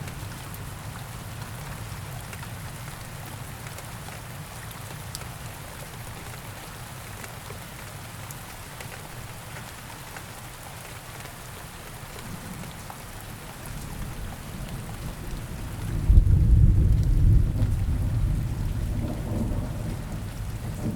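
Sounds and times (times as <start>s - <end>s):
rain falling: 0.0s - 20.9s
raindrops ticking on surfaces: 0.0s - 20.9s
thunder rumbling: 14.1s - 20.9s.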